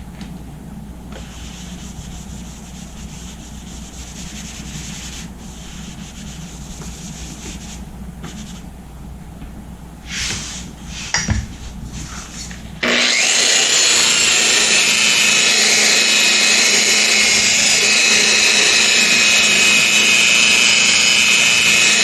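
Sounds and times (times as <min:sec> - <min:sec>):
buffer pad rubbing hiss: 0:01.1 - 0:08.7, 0:10.0 - 0:12.7
electric buffer motor hum: 0:12.4 - 0:22.0.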